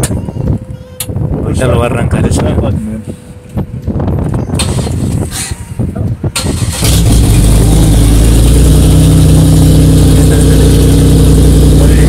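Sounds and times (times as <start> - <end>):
car engine starting and idling: 4.6 - 5.5, 6.3 - 12.0.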